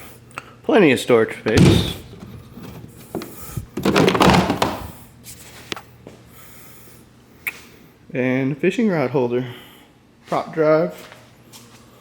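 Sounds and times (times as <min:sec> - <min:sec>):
scraping rustle: 0:01.5 - 0:04.8.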